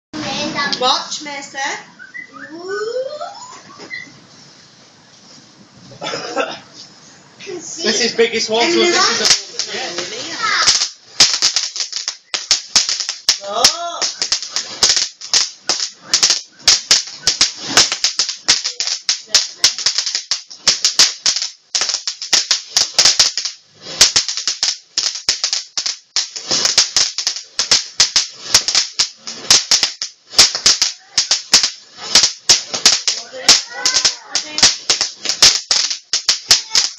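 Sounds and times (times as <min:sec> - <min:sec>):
firework crackling: 0:07.9 - 0:36.9.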